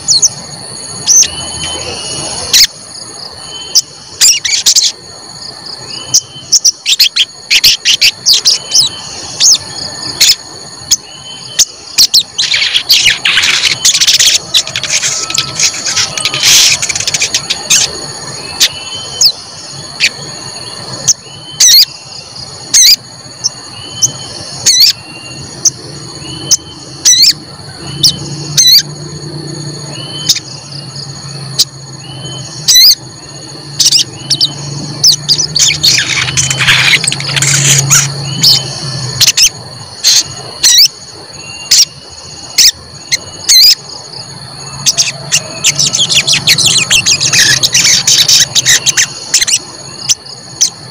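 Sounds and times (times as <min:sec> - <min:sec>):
songbird sharp high chirps: 0:05.9 - 0:28.9, 0:29.9 - 0:33.0, 0:33.7 - 0:39.5, 0:44.7 - 0:50.7.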